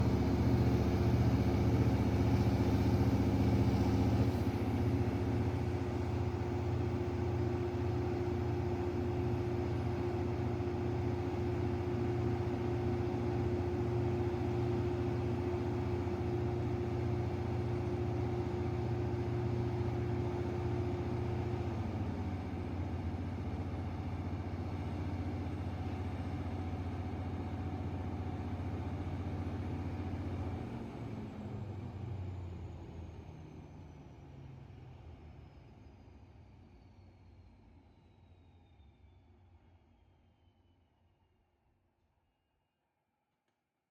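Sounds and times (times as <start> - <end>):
diesel generator humming: 0.0 - 9.5.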